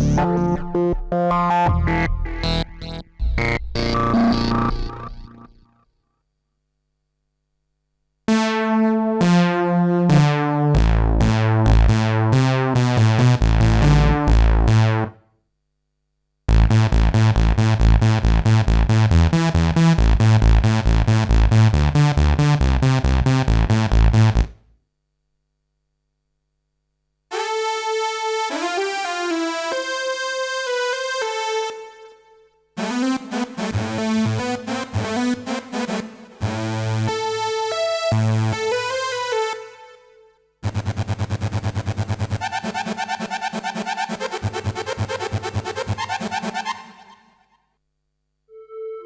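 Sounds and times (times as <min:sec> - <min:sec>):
synthesizer lead line sliding: 0:00.0 - 0:05.6
synthesizer rhythmic passages: 0:00.0 - 0:05.8, 0:08.3 - 0:15.2, 0:27.3 - 0:40.0, 0:42.0 - 0:47.5.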